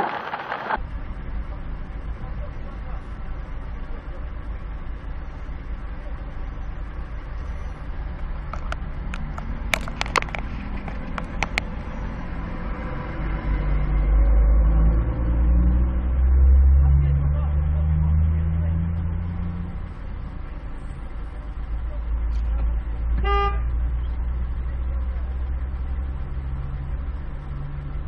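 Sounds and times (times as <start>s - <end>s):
car engine rumble from cabin: 0.7s - 28.0s
sharp clicks: 8.5s - 11.8s.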